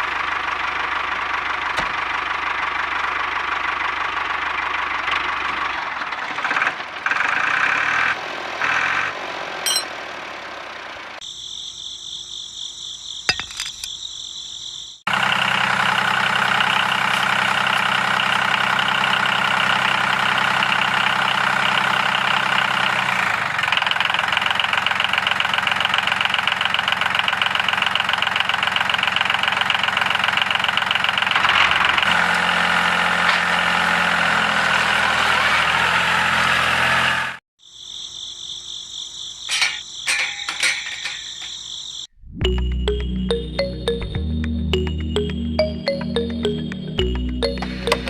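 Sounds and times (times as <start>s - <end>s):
high steady tones: 42.4s - 48.0s.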